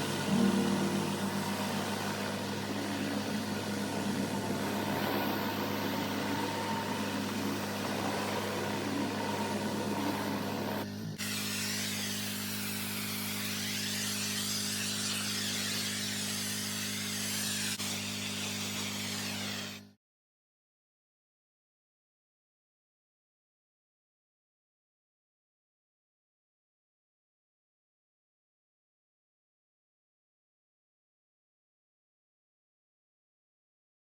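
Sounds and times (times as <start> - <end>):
pressure washer engine hum: 0.0 - 10.8.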